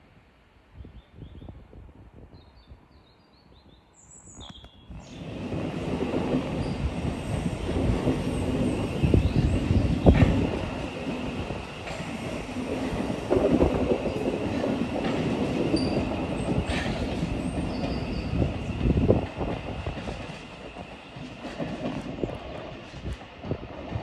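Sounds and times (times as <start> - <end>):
train wheels rumbling on rails: 4.9 - 24.0.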